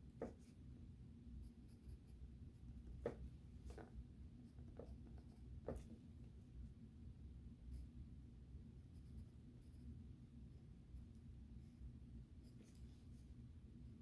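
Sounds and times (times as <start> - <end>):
low steady hum: 0.0 - 14.0
pencil scratching on paper: 0.2 - 0.6, 1.4 - 6.0, 8.9 - 9.9.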